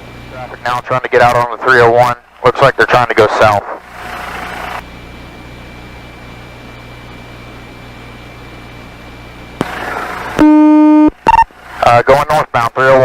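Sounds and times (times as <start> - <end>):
radio static hiss and hum: 0.2 - 4.8, 9.6 - 13.0
faint high steady tone: 10.4 - 11.5.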